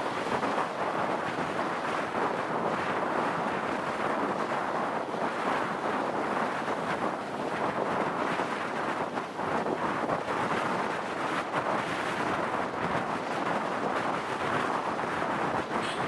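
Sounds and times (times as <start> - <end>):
wind buffeting microphone: 0.0 - 16.0
motorbike riding noise: 15.6 - 16.0.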